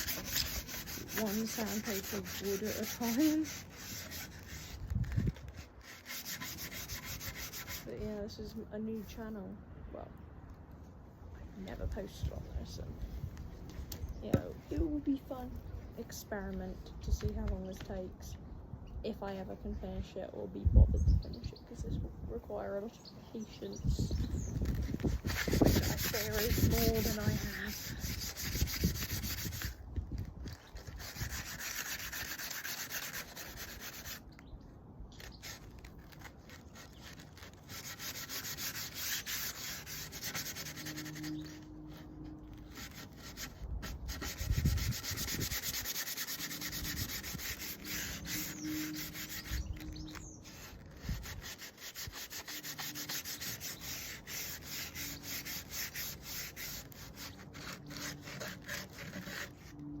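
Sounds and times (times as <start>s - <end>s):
sandpaper rubbing on wood: 0.0s - 8.0s, 24.0s - 29.8s, 30.5s - 34.3s, 35.2s - 60.0s.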